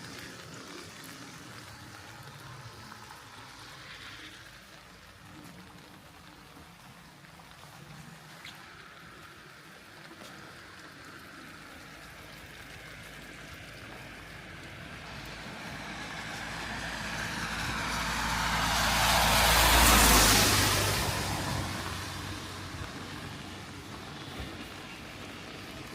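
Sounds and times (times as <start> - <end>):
tyres hissing on wet road: 0.0 - 25.9
low engine rumble: 10.3 - 25.9.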